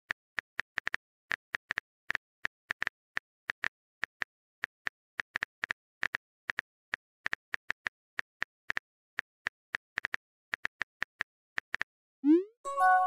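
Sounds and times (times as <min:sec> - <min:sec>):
phone keyboard typing clicks: 0:09.4 - 0:11.9.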